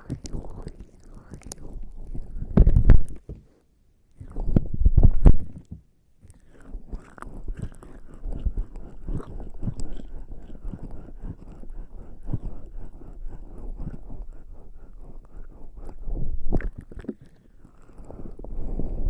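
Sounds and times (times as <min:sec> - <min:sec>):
skin rubbing on microphone: 0:00.0 - 0:03.6, 0:04.2 - 0:05.7, 0:06.3 - 0:19.0.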